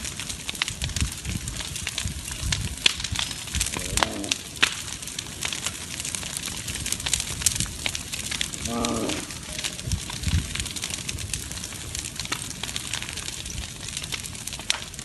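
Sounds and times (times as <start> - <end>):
fire crackling and popping: 0.0 - 15.0
low fire rumble: 0.0 - 15.0.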